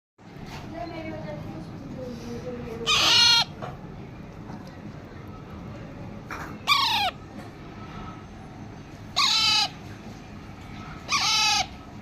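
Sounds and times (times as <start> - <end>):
parrot calling: 2.8 - 3.6, 6.6 - 7.3, 9.1 - 9.9, 11.0 - 12.0.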